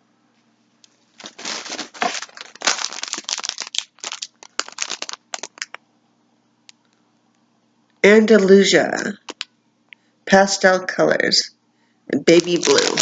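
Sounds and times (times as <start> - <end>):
packaging rustling and crinkling: 0.9 - 5.8, 12.3 - 13.0.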